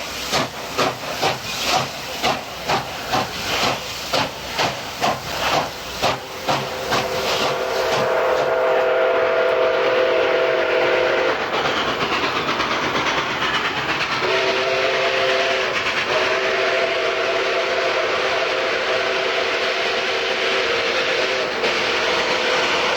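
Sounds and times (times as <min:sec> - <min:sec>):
rush of steam: 0:00.0 - 0:22.9
steam locomotive exhaust chuffs: 0:00.0 - 0:22.9
chime steam whistle: 0:06.4 - 0:11.3.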